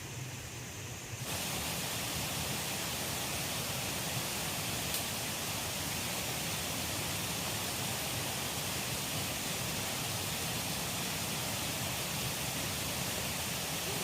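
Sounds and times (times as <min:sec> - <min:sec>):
river water rushing: 0:01.2 - 0:14.0
faint click: 0:04.9 - 0:05.1.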